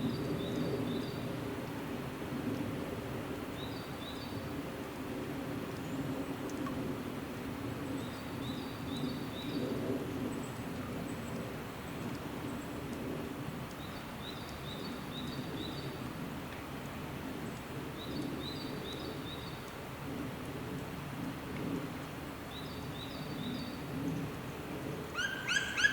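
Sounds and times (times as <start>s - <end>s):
songbird singing: 13.7s - 16.0s, 25.1s - 25.9s.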